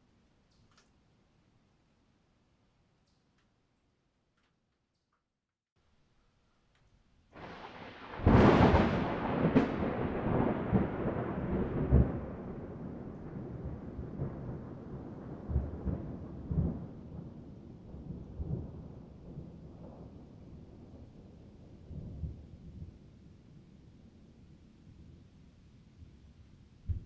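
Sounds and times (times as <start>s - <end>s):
thunder crack and rumble: 7.4s - 23.0s.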